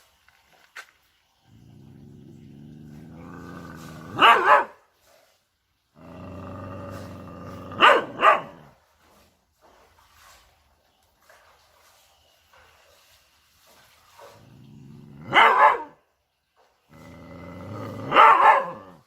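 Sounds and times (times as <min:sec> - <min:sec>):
dog growling: 0:01.5 - 0:04.5, 0:06.0 - 0:08.7, 0:14.4 - 0:15.9, 0:16.9 - 0:19.0
dog barking: 0:04.1 - 0:04.8, 0:07.7 - 0:08.7, 0:15.2 - 0:16.0, 0:18.0 - 0:19.0.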